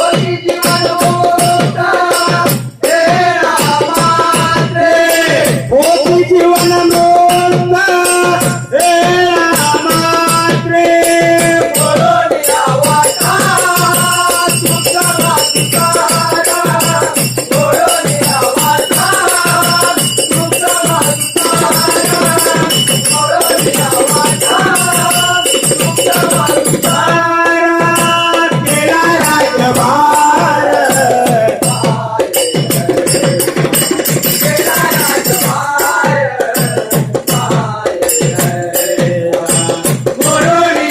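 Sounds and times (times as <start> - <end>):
devotional group music: 0.0 - 40.9
fast rhythmic percussion: 0.0 - 40.9
high ringing shimmer: 12.5 - 27.0.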